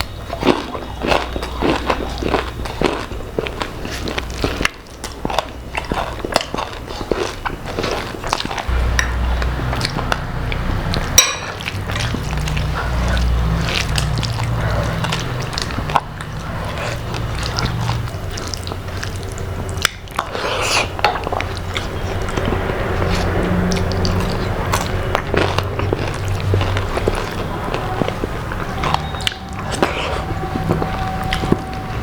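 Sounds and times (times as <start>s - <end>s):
person biting and chewing food: 0.0s - 32.0s
low rumble: 8.7s - 18.2s.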